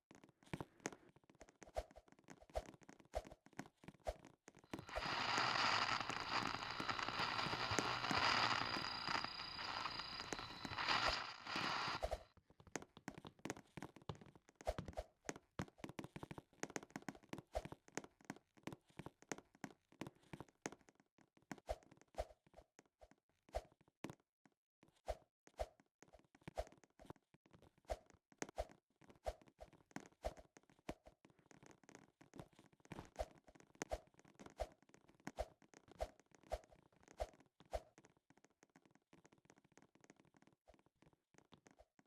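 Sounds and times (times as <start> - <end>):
small clicks: 4.7 - 12.1.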